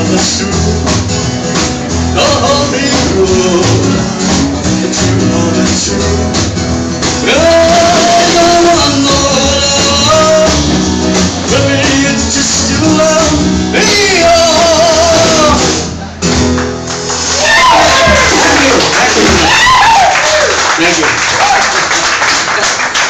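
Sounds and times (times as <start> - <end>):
person singing: 0.0 - 1.0, 2.1 - 6.5, 7.1 - 16.0
strummed band accompaniment: 0.0 - 23.0.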